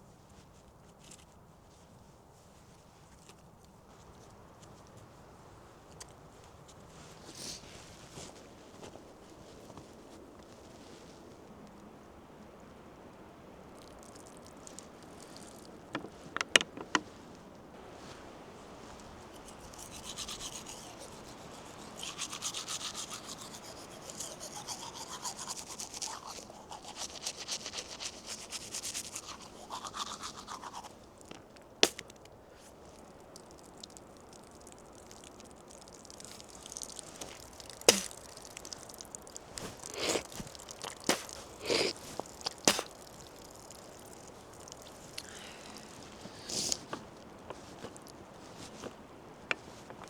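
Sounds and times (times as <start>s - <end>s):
scratchy rubbing and scraping: 19.3s - 31.0s.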